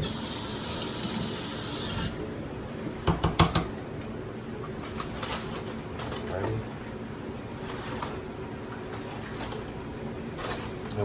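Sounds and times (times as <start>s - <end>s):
kitchen tap running: 0.0s - 2.3s
kitchen knocks and clatters: 3.0s - 3.8s.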